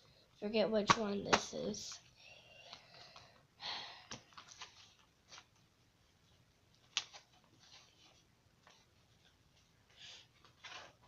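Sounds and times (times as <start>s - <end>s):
books rustling: 4.2s - 5.7s, 6.3s - 11.0s.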